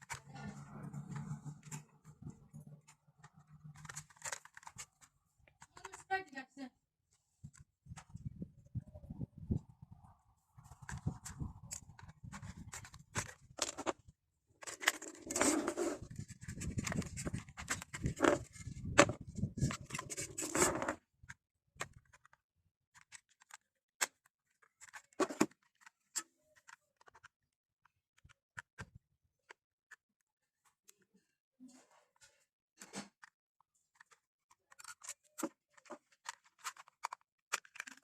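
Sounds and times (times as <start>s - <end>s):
plastic toys clicking: 2.8s - 6.1s, 23.0s - 27.3s, 33.9s - 38.0s.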